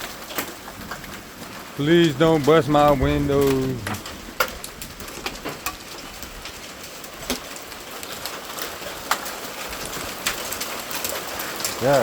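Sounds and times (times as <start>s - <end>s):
rain hissing: 0.0s - 12.0s.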